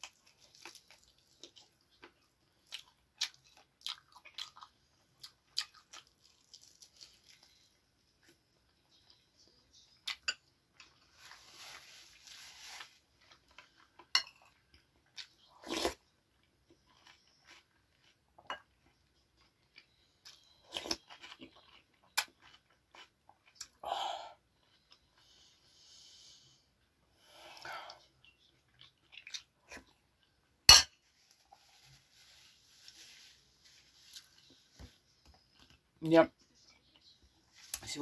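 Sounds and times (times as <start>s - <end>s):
chewing with crunches: 0.0s - 9.2s, 13.2s - 23.8s, 27.9s - 30.3s
paper napkin rustling: 11.2s - 13.0s, 31.1s - 34.9s.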